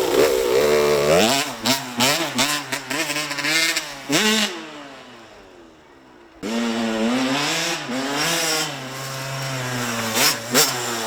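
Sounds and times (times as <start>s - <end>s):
dirt bike engine revving: 0.0s - 4.8s, 6.4s - 11.0s.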